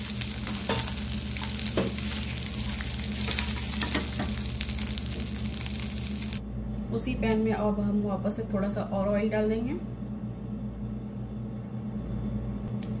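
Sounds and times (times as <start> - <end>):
prawns sizzling in hot oil: 0.0 - 6.4.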